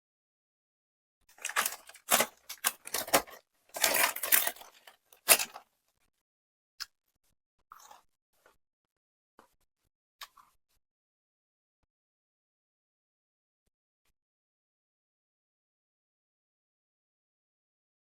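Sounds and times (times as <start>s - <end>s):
eating and food rustling: 1.4s - 5.6s.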